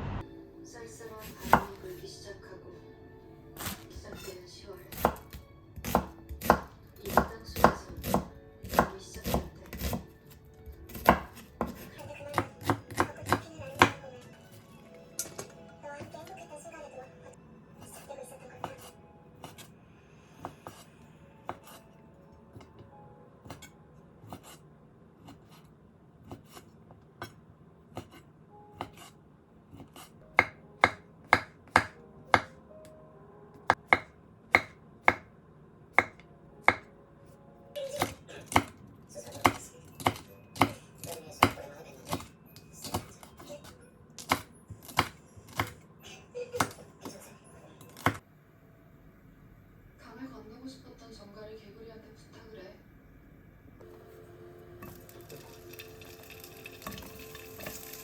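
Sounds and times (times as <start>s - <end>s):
knife chopping on cutting board: 1.2s - 1.8s, 4.9s - 10.1s, 10.9s - 14.0s, 20.4s - 20.9s, 21.5s - 21.8s, 25.2s - 28.2s, 28.8s - 32.6s, 33.7s - 35.3s, 36.0s - 36.9s, 38.0s - 38.8s, 39.4s - 43.5s, 44.2s - 45.8s, 47.9s - 48.2s.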